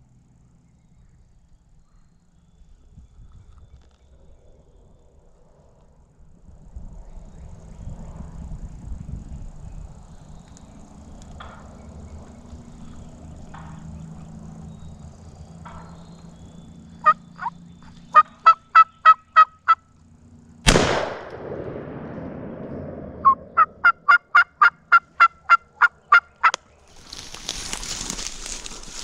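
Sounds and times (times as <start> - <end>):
turkey yelps: 17.0 - 17.5, 18.2 - 19.8, 23.2 - 26.6
shotgun blast: 20.6 - 23.8.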